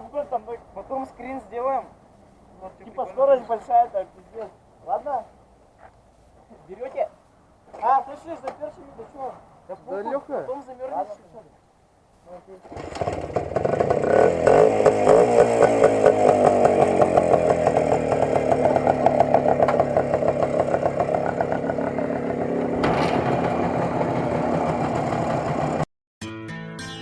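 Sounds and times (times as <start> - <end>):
motorcycle engine running: 12.7 - 25.9.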